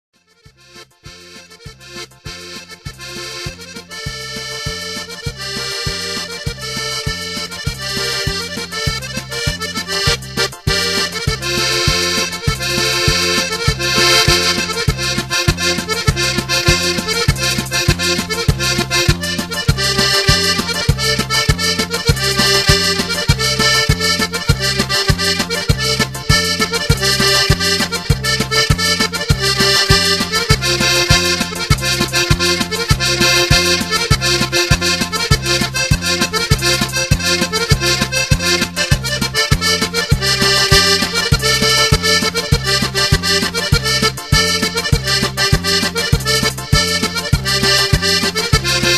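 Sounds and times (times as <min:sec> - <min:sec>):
accordion music: 0:00.2 - 0:48.9
steady bass beat: 0:00.5 - 0:48.9.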